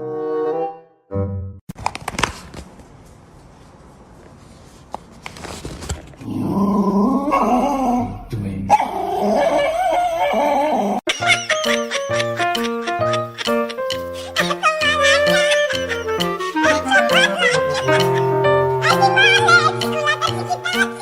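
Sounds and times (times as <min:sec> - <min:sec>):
dog crying: 0:07.2 - 0:21.0.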